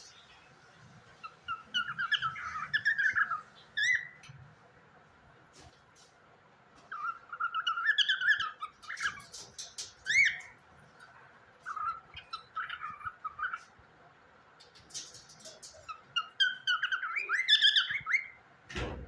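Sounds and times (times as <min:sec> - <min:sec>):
cockatiel chirping: 0:01.2 - 0:04.3, 0:06.9 - 0:10.6, 0:11.6 - 0:13.7, 0:14.9 - 0:18.4.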